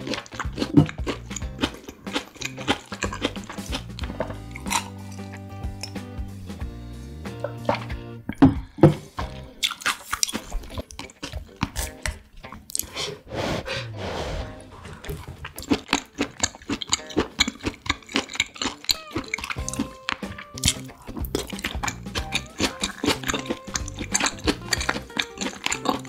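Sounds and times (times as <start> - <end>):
chewing and biting food: 0.0 - 6.0, 8.8 - 13.0, 14.8 - 26.0
faint background music: 0.0 - 26.0.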